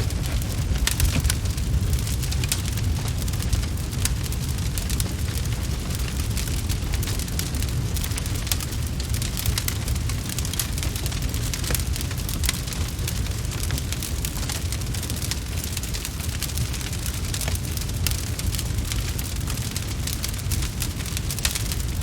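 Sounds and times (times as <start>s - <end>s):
low rumble: 0.0s - 15.7s
wood fire crackling: 0.0s - 22.0s.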